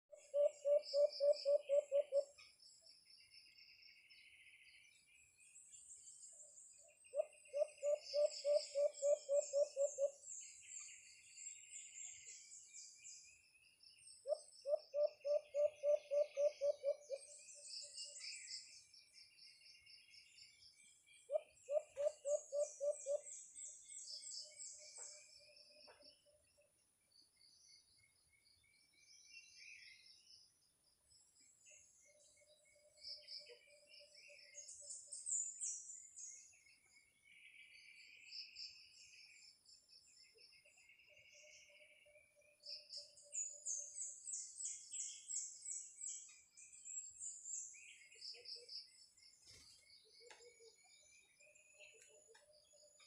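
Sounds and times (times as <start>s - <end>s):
small birds chirping: 0.1s - 53.0s
bird hooting: 0.2s - 2.4s, 7.2s - 10.2s, 14.3s - 17.2s, 21.3s - 23.3s.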